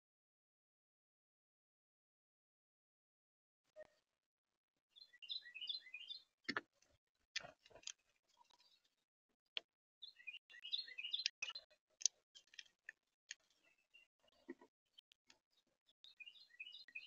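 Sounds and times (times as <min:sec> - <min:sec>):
down-slurred bird notes: 0:10.0 - 0:11.6.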